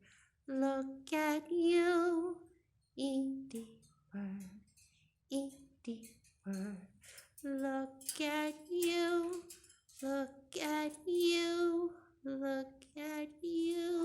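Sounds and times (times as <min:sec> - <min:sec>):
high voice singing: 0:05.3 - 0:14.0.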